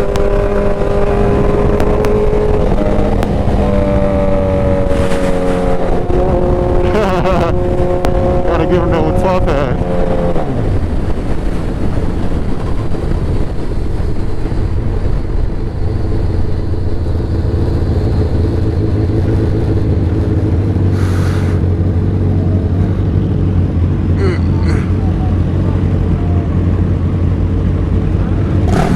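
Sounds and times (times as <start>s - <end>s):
motorcycle engine running: 0.0s - 28.9s
short hiss: 21.0s - 21.6s.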